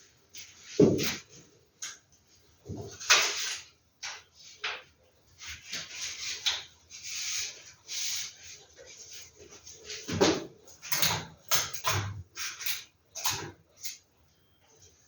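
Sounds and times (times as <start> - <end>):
paper posters rustling: 2.3 - 10.8.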